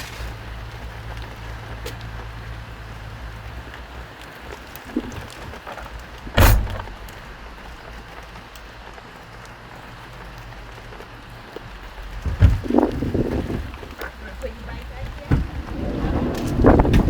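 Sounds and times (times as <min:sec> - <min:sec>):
car door slamming: 0:06.2 - 0:07.2.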